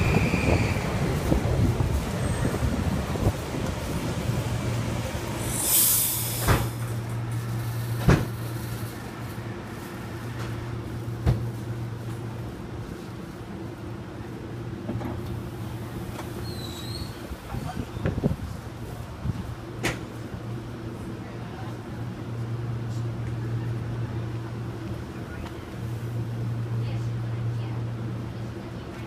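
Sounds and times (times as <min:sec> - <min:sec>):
train rolling to a stop: 0:00.0 - 0:09.4, 0:14.9 - 0:18.5
standing train low hum: 0:00.0 - 0:29.0
air hiss burst: 0:05.4 - 0:06.9.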